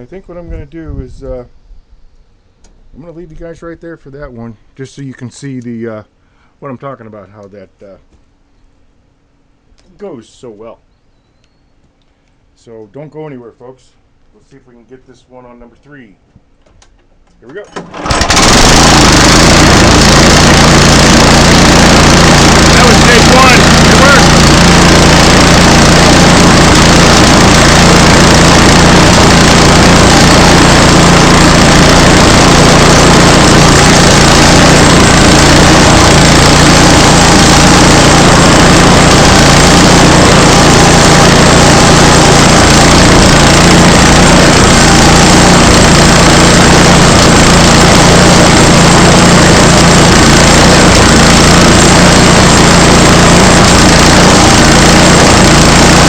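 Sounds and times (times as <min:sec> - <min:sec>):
small gasoline engine running: 0:17.8 - 0:56.0
saw blade cutting log: 0:21.9 - 0:56.0.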